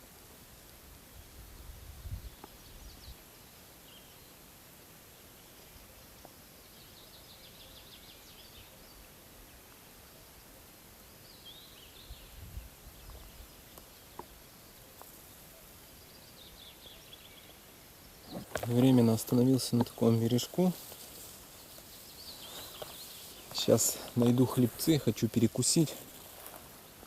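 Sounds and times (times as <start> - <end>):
faint steady hiss: 0.0 - 27.0
small birds trilling: 11.0 - 27.0.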